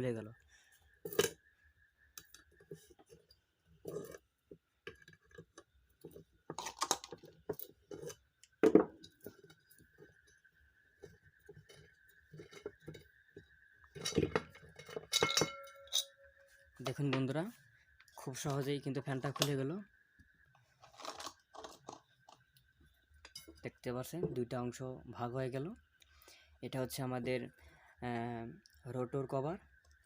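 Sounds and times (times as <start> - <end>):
metal parts clinking and knocking: 13.9 - 16.2.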